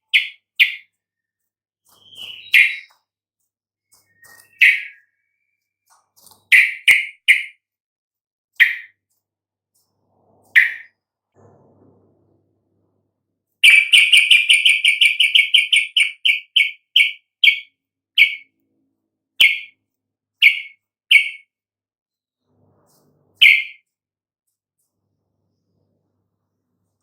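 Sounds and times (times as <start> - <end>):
bulbul chirping: 0.0 - 0.9, 1.9 - 2.9, 4.0 - 5.5, 6.5 - 7.6, 8.6 - 9.0, 10.5 - 10.9, 13.6 - 18.5, 19.4 - 19.8, 20.4 - 21.5, 23.4 - 23.8.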